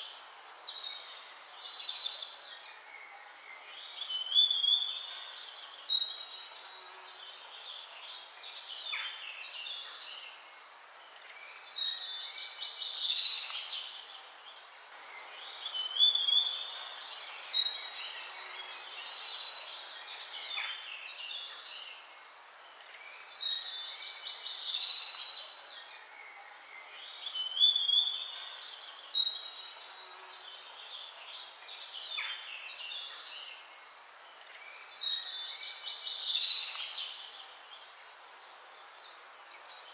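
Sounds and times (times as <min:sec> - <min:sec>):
background bird chorus: 0:00.0 - 0:39.9
birds chirping: 0:00.0 - 0:39.9.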